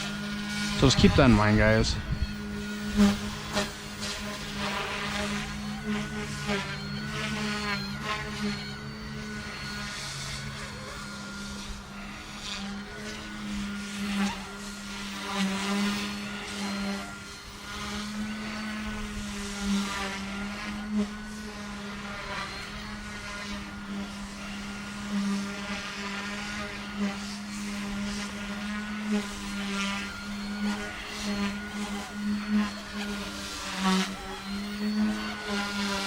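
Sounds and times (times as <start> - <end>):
helicopter rotor hum: 0.0 - 36.0
motor whine: 0.0 - 36.0.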